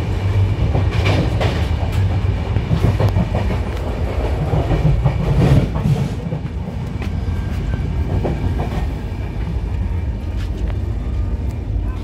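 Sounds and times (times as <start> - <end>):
train rumbling along track: 0.0 - 12.0
wheels clacking over rails: 0.4 - 7.2.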